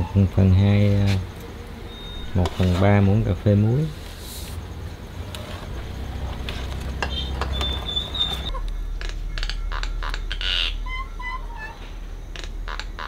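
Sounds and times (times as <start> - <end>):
low steady hum: 0.6 - 13.0
high bird whistles: 7.0 - 8.5.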